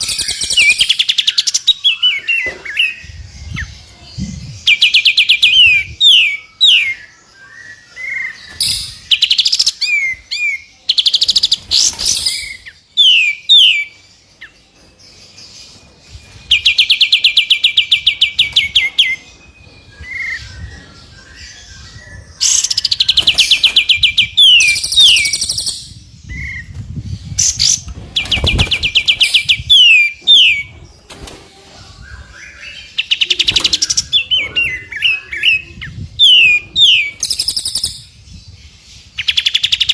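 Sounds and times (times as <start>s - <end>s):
songbird song with fast trills: 0.0s - 30.9s.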